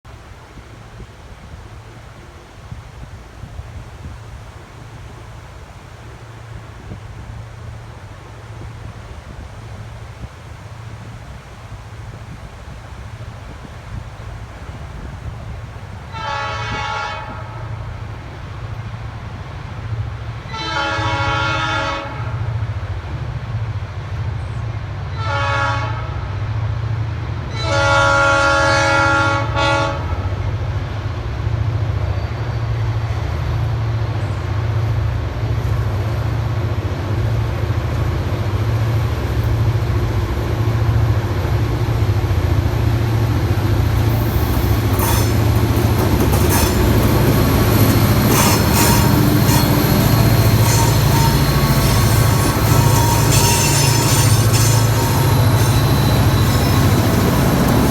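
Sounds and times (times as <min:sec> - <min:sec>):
locomotive horn blasts: 0:16.1 - 0:17.9, 0:20.5 - 0:22.6, 0:25.2 - 0:26.4, 0:27.5 - 0:30.4, 0:44.0 - 0:57.9
diesel engines rumbling: 0:36.8 - 0:57.9
wheels clattering on rail joints: 0:39.2 - 0:57.9
wheel squeal: 0:44.0 - 0:57.9.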